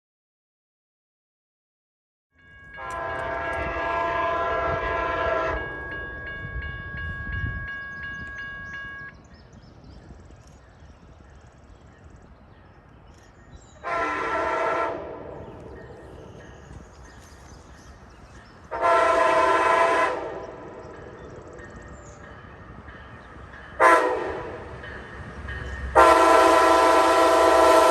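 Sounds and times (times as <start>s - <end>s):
train rumble: 2.5s - 27.9s
locomotive air horn: 2.7s - 6.0s, 13.8s - 15.4s, 18.7s - 20.7s, 23.8s - 24.7s, 26.0s - 27.9s.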